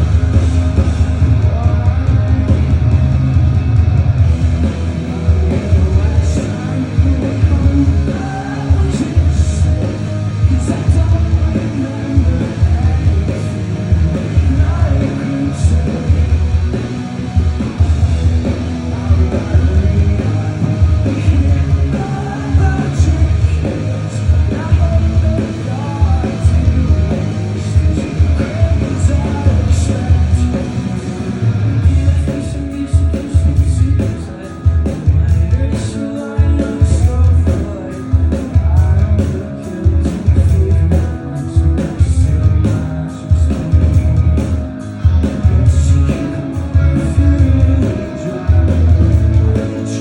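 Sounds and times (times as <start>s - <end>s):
rock band playing live: 0.0s - 50.0s.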